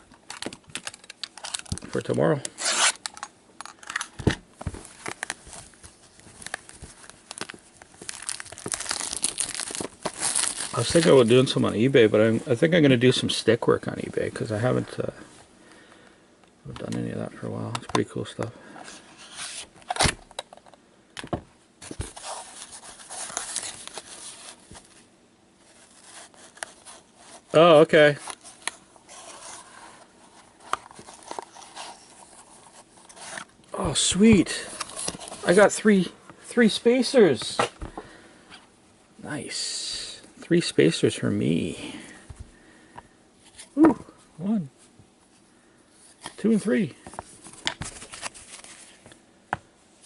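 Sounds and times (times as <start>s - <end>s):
cards and wrappers rustling: 0.0s - 13.1s, 21.8s - 38.1s, 46.1s - 49.2s.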